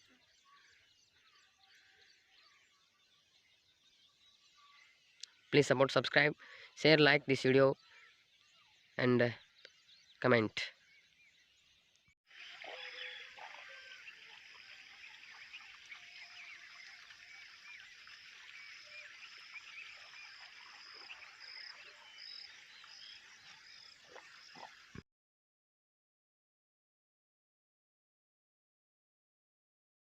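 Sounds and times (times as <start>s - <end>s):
chorus of short chirping calls: 12.4s - 25.0s.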